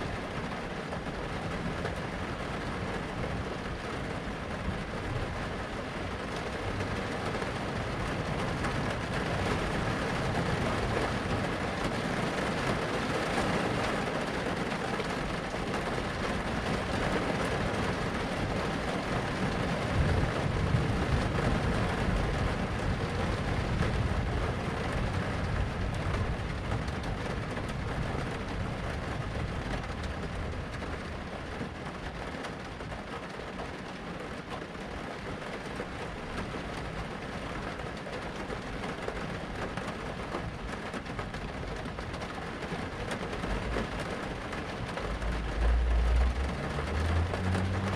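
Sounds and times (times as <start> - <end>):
steady rain: 0.0 - 47.9
low rolling thunder: 19.1 - 31.2.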